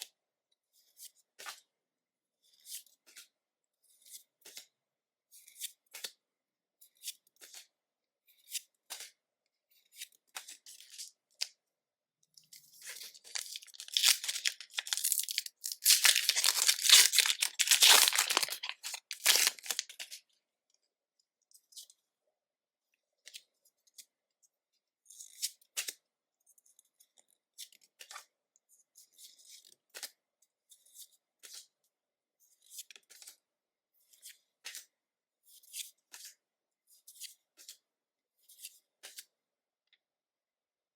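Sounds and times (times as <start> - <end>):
cards clicking and rustling: 12.8 - 20.1
foil wrapper tearing: 13.1 - 20.0.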